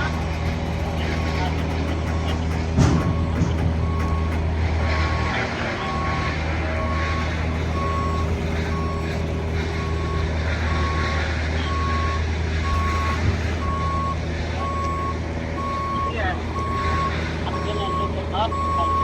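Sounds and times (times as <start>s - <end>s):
diesel engine running: 0.0s - 19.0s
truck reversing alarm beeps: 0.0s - 19.0s
short knock: 0.1s - 4.6s.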